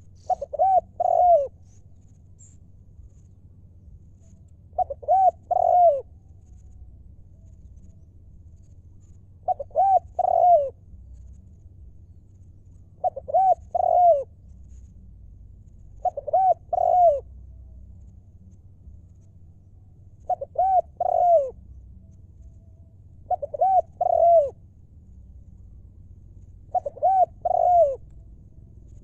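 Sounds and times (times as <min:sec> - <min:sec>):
dove cooing: 0:00.0 - 0:01.7, 0:04.7 - 0:06.7, 0:09.4 - 0:11.3, 0:12.9 - 0:14.4, 0:16.0 - 0:17.4, 0:20.2 - 0:21.6, 0:23.2 - 0:24.6, 0:26.6 - 0:29.0.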